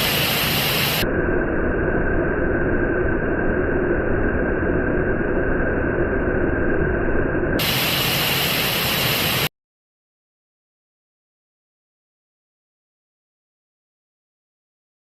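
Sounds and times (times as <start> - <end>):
waterfall pouring: 7.6 - 9.5.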